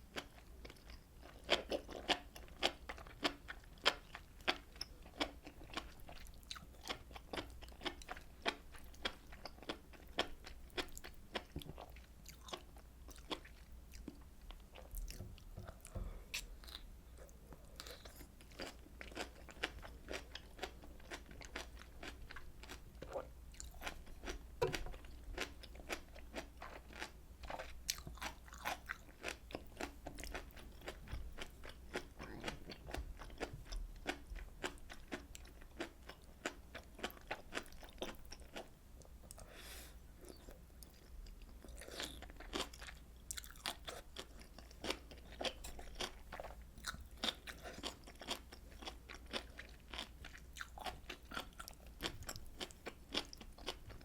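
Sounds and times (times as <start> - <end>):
close chewing and mouth sounds: 0.0 - 54.0.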